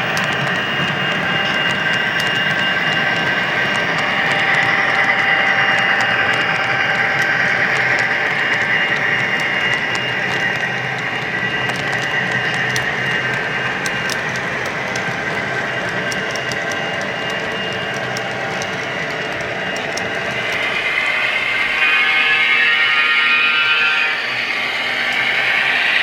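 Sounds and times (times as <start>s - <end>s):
wheels clicking over rail joints: 0.0s - 21.8s
model train whine: 0.0s - 26.0s.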